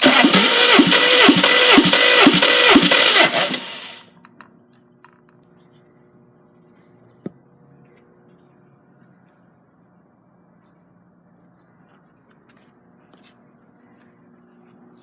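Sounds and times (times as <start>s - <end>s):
starter cranking engine: 0.0s - 4.1s.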